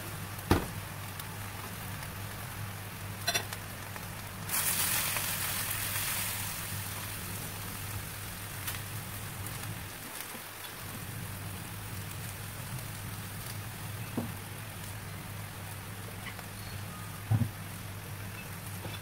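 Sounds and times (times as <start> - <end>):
food frying in wok: 0.0 - 19.0
knock on wok: 0.5 - 0.8.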